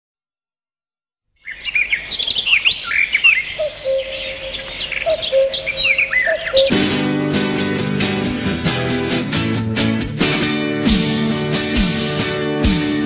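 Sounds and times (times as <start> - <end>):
birds chirping: 1.4 - 8.0
acoustic guitar music: 3.9 - 13.0
low held whistle: 5.2 - 6.8.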